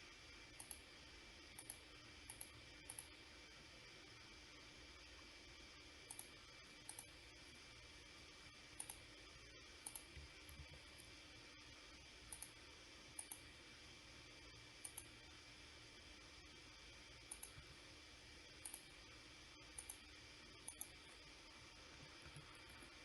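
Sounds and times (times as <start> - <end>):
low hiss and hum: 0.0 - 23.0
computer mouse clicks: 0.5 - 0.9, 1.5 - 3.2, 6.0 - 7.2, 8.8 - 9.1, 9.8 - 11.1, 12.2 - 13.5, 14.8 - 15.2, 17.2 - 17.7, 18.6 - 19.0, 19.7 - 21.2.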